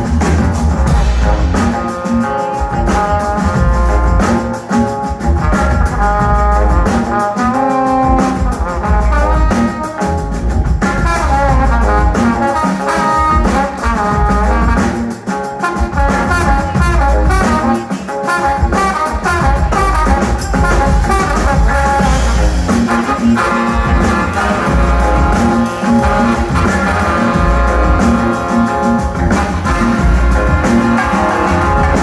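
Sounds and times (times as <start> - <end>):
pulsing bass beat: 0.0 - 1.8, 2.8 - 4.2, 5.2 - 7.0, 10.2 - 12.3, 16.1 - 17.6, 19.3 - 32.0
live band upbeat groove: 0.0 - 32.0
horn section: 0.2 - 32.0.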